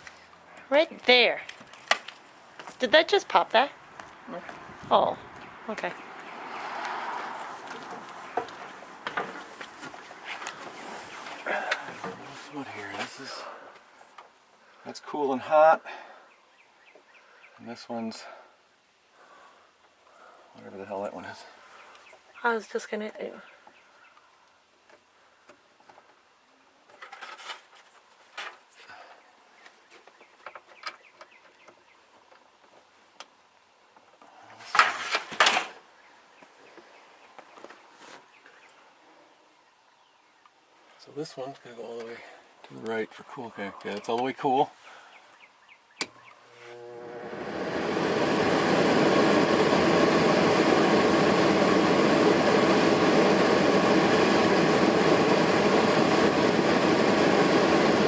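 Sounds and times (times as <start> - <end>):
air conditioner blower running: 46.5 - 58.0.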